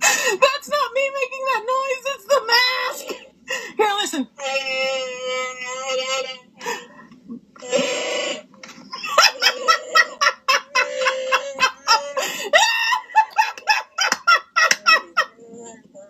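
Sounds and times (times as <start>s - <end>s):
woman laughing: 8.9s - 15.8s.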